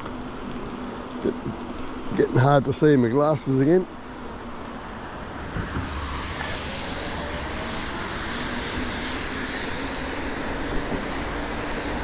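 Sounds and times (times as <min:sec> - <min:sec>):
traffic on wet roads: 0:04.8 - 0:12.0.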